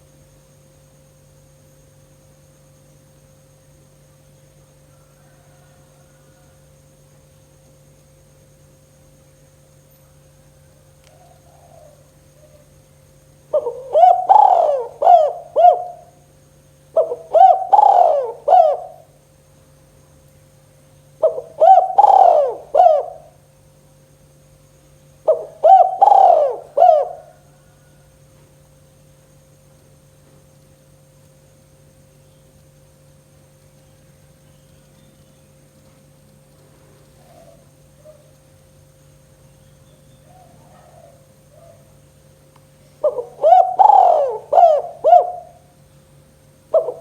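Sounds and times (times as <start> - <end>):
faint steady hum: 0.0 - 47.0
dove cooing: 10.6 - 12.8, 13.5 - 16.3, 16.9 - 19.2, 21.2 - 23.4, 25.2 - 28.1, 37.0 - 38.4, 40.1 - 42.1, 42.9 - 45.8, 46.7 - 47.0.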